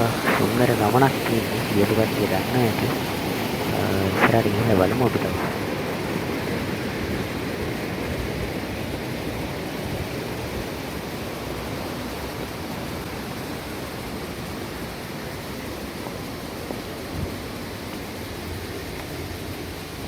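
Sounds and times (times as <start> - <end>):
stream water flowing: 0.0 - 20.0.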